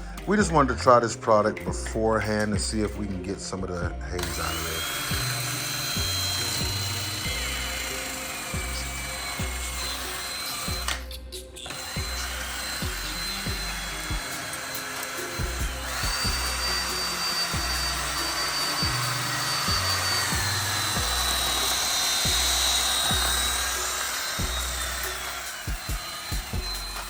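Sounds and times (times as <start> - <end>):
background music with beat: 0.0 - 27.0
electric drill motor whine: 4.2 - 27.0
sanding hiss: 4.3 - 27.0.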